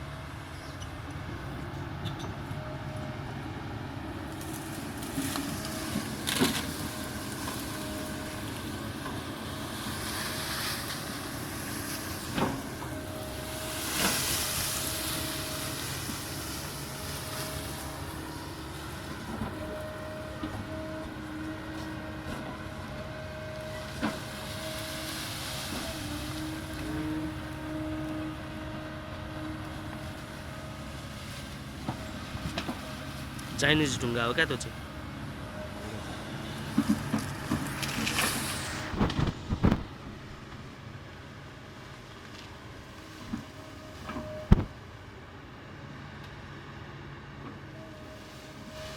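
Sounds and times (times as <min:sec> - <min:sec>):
excavator engine running: 0:00.0 - 0:48.9
hydraulic whine: 0:04.2 - 0:41.5.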